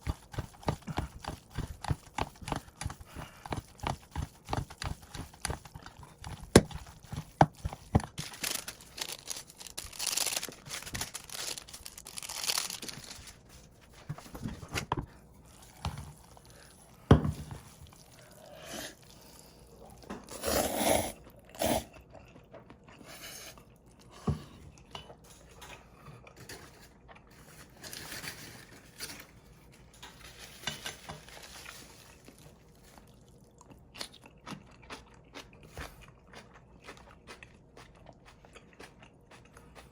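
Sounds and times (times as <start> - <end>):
wet noodle slurping: 17.9 - 22.4.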